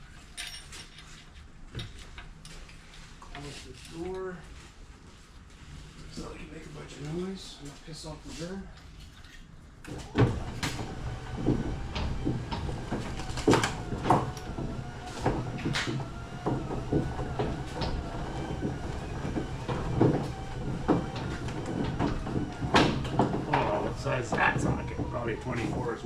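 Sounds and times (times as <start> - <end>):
steady low hum: 10.1 - 26.0.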